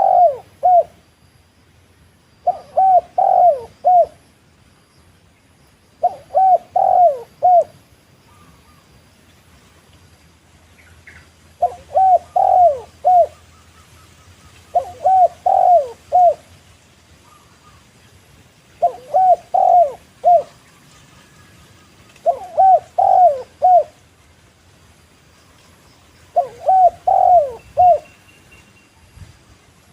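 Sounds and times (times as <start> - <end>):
dove cooing: 0.0 - 1.0, 2.4 - 4.2, 6.0 - 8.8, 11.6 - 16.5, 18.8 - 20.6, 22.1 - 24.0, 26.3 - 28.1.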